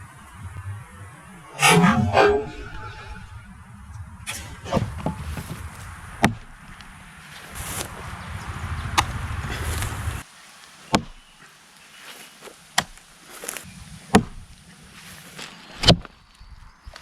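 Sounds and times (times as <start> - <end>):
low rumble: 0.0 - 7.2
tomahawk chopping hits: 10.9 - 11.2.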